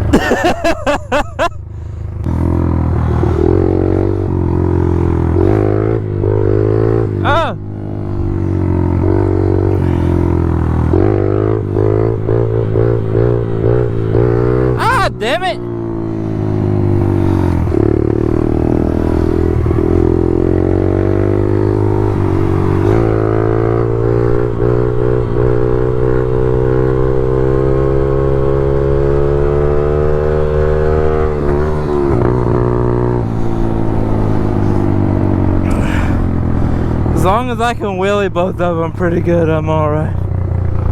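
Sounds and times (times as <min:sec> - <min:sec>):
small motorbike engine revving: 0:16.2 - 0:37.2.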